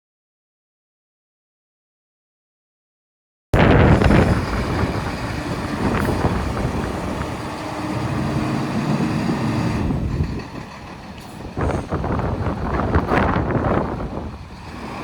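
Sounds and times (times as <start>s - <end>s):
truck diesel engine running: 3.6s - 15.0s.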